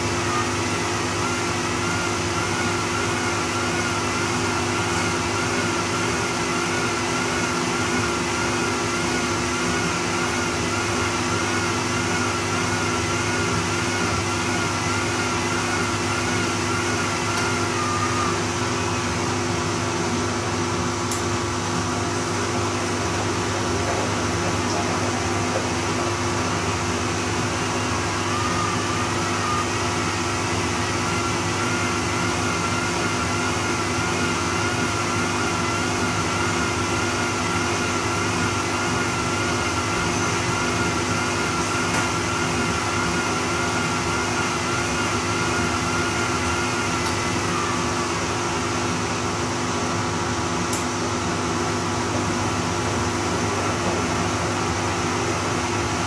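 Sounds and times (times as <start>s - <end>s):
washing machine hum: 0.0s - 56.0s
wavering motor whine: 13.2s - 20.2s.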